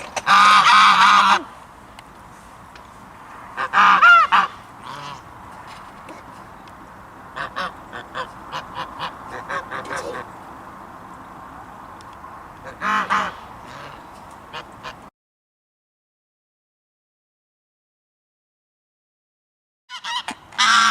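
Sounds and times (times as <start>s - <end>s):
geese honking: 0.0s - 1.6s, 3.5s - 6.4s, 7.2s - 10.4s, 12.6s - 15.1s, 19.9s - 20.9s.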